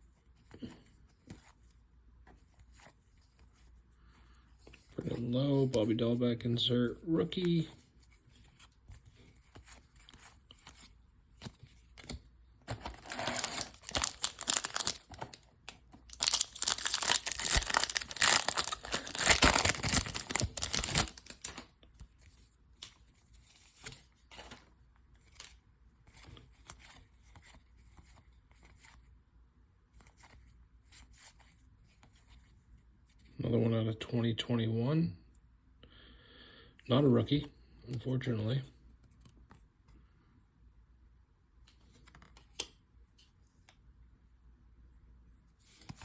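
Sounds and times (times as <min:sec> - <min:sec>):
cards being handled: 0:07.2 - 0:29.0, 0:41.7 - 0:43.8
foil wrapper tearing and crinkling: 0:13.0 - 0:15.4, 0:16.0 - 0:21.6.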